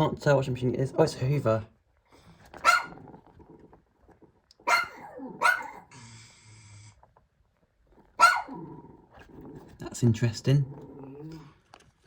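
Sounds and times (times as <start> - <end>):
dog barking: 2.6 - 3.1, 4.6 - 5.9, 8.2 - 8.7.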